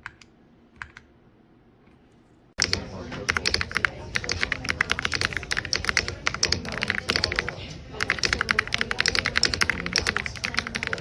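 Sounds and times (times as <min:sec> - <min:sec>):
typing on mechanical keyboard: 0:02.6 - 0:11.0.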